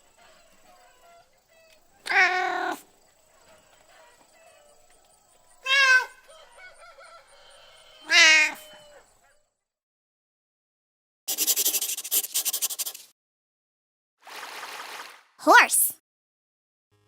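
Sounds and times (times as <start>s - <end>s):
cat meowing: 2.1s - 2.8s, 5.6s - 6.2s, 8.0s - 8.8s.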